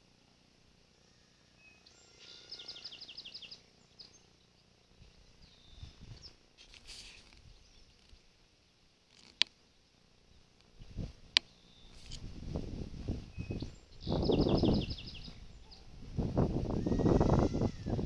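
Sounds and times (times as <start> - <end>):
songbird trilling: 1.6 - 4.5, 5.4 - 6.4, 11.4 - 12.1, 13.3 - 15.9.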